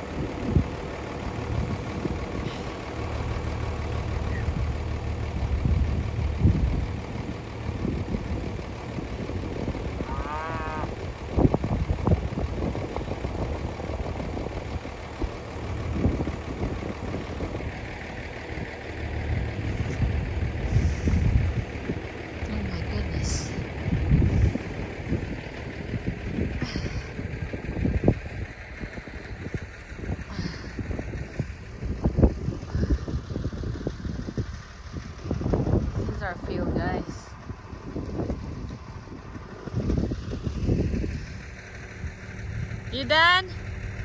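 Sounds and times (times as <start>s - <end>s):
vehicle engine idling: 0.0s - 44.0s
cow calling: 10.0s - 11.0s.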